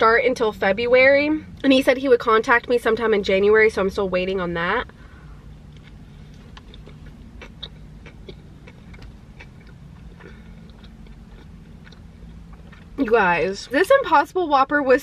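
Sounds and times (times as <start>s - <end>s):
low steady hum: 0.0s - 15.0s
person chewing food: 5.6s - 13.0s.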